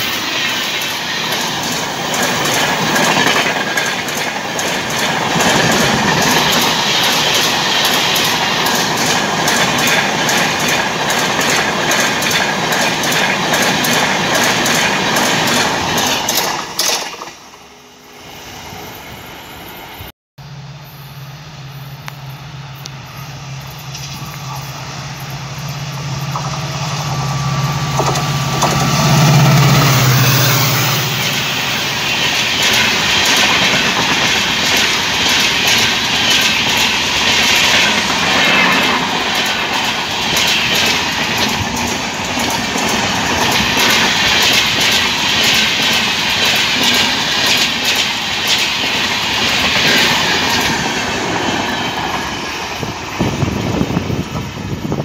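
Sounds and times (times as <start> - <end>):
wheels clickety-clack over joints: 0.0 - 17.4, 27.8 - 29.0, 31.2 - 53.9
locomotive low hum: 1.2 - 55.0.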